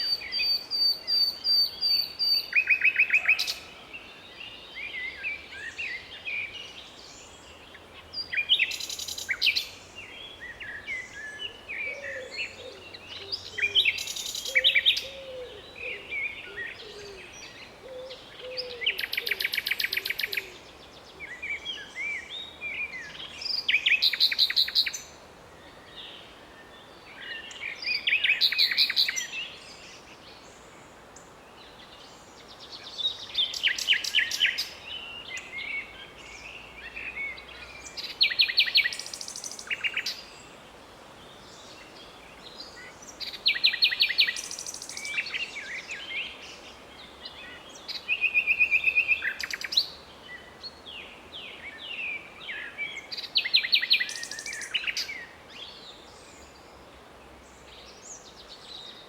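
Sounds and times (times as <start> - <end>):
nightingale singing: 0.0 - 3.7, 7.7 - 25.2, 27.2 - 30.1, 32.8 - 40.5, 41.6 - 50.9, 51.5 - 56.6.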